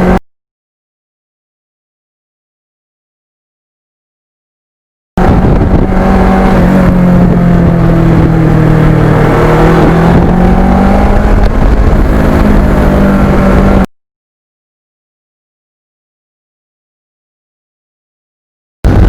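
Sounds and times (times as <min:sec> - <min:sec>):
motorcycle engine running: 0:05.2 - 0:13.9.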